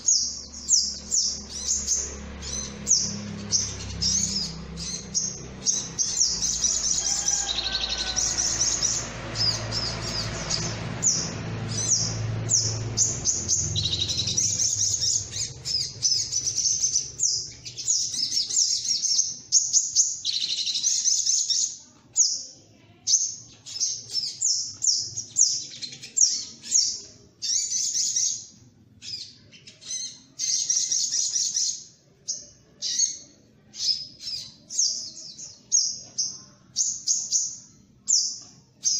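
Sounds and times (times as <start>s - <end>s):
bird chirping trills: 0.0s - 38.9s
low rumble: 0.2s - 17.6s.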